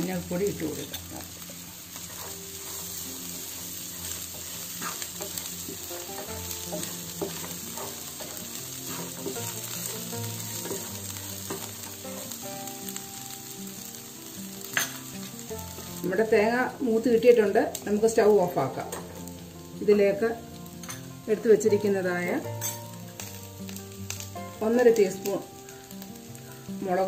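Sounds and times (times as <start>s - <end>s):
vegetables sizzling in hot oil: 0.0s - 27.0s
wooden spatula scraping pan: 2.0s - 10.9s.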